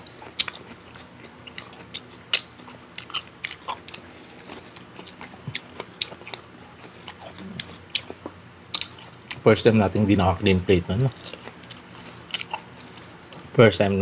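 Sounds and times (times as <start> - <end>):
person chewing food: 0.0 - 9.4, 11.0 - 13.5.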